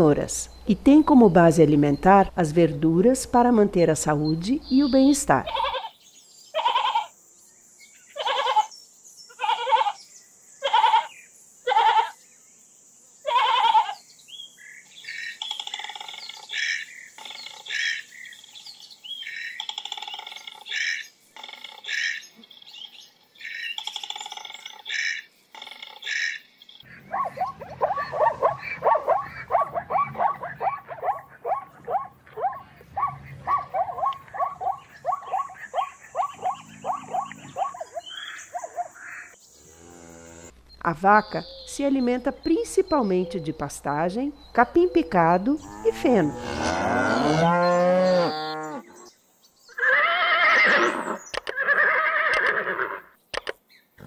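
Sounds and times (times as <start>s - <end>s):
bird chirps: 14.0s - 49.8s
fast pulsing animal calls: 23.8s - 39.3s.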